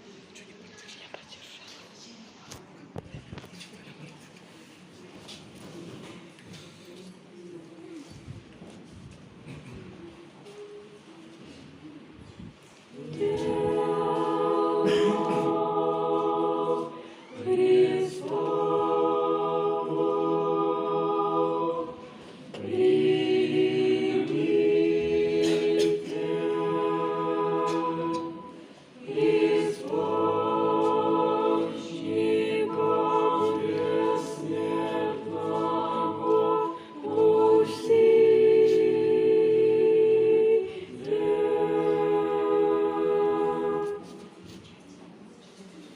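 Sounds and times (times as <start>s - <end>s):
choir holding long notes: 12.9s - 44.6s.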